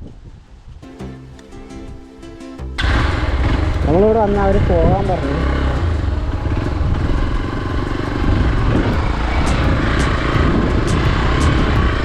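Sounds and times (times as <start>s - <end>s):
wind buffeting microphone: 0.0s - 0.9s, 1.6s - 12.0s
motorcycle engine rumble: 2.7s - 12.0s.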